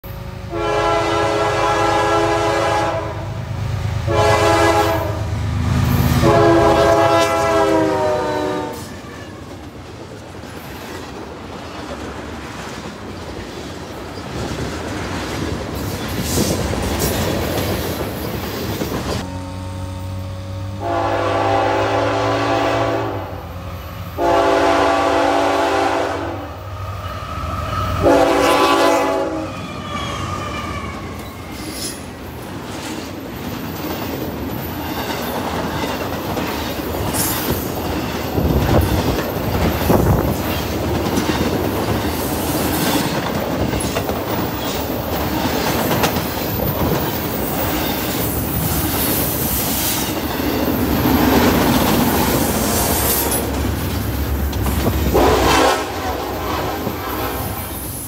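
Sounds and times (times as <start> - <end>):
freight train rumbling past: 0.0 - 58.0
locomotive horn blasts: 0.4 - 5.4, 6.0 - 9.4, 20.8 - 23.5, 24.2 - 29.8, 52.5 - 53.6, 55.0 - 57.8.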